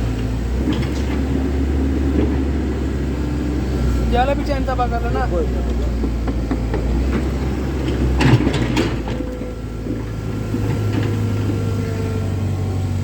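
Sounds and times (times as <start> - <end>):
excavator diesel engine running: 0.0 - 13.0
metallic clanks: 5.7 - 11.6.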